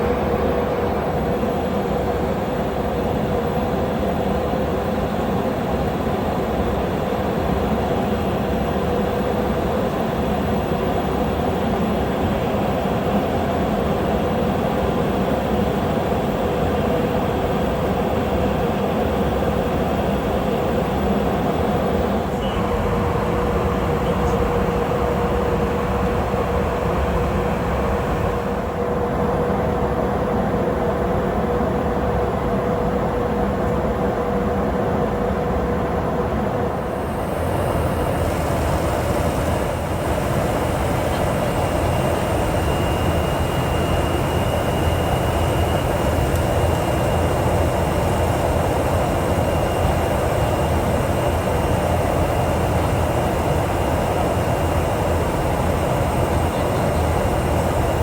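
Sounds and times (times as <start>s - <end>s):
high engine whine with hiss: 0.0s - 58.0s
jet engines rumbling: 35.2s - 58.0s.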